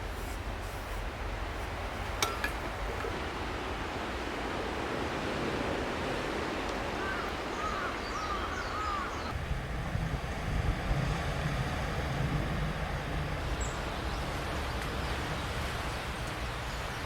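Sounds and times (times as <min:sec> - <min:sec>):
rushing sea wind: 0:00.0 - 0:17.0
waves washing on shore: 0:00.0 - 0:17.0
bird calling: 0:07.0 - 0:09.4.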